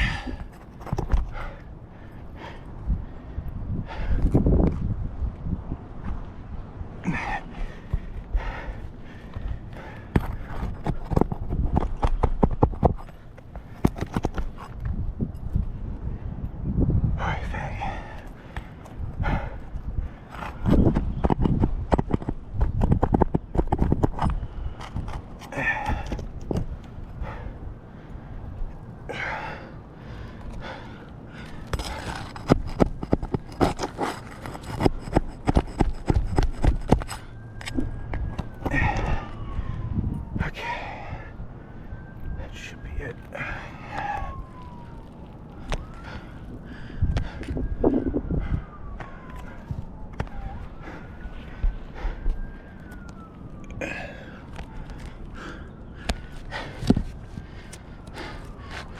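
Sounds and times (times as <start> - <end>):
scraping: 31.5 - 37.8.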